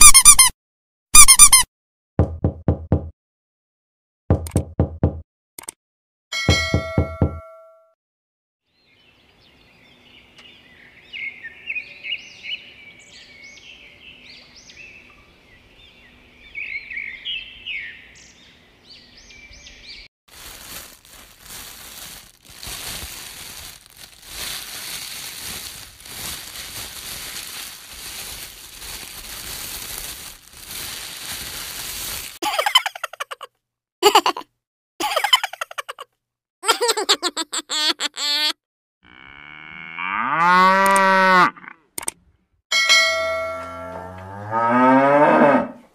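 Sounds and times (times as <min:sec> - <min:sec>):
songbirds chirping: 0:08.7 - 0:20.1
dense crackling rustling noise: 0:20.3 - 0:32.4.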